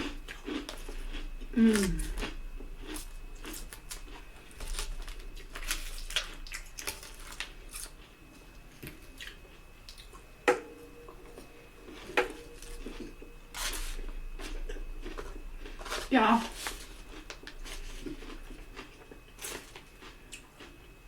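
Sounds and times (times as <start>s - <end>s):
chewing and mouth clicks: 0.0s - 10.2s, 16.8s - 21.0s.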